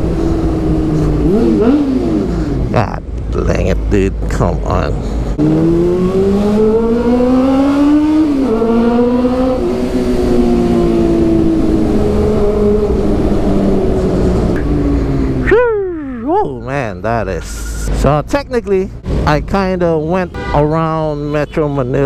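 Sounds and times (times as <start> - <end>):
motorcycle engine revving: 0.0 - 2.8, 5.3 - 15.6
wind rumbling on microphone: 5.3 - 15.8.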